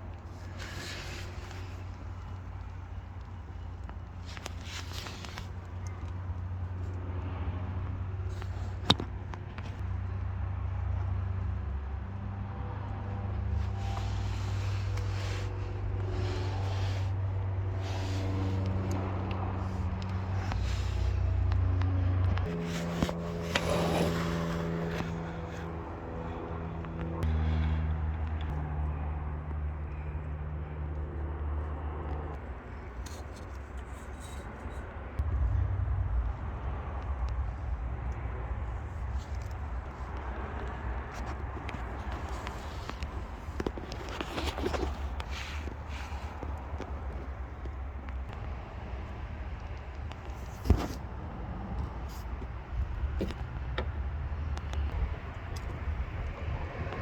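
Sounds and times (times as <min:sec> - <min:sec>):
car engine low hum: 0:00.0 - 0:57.0
loud low rumble: 0:35.2 - 0:40.9.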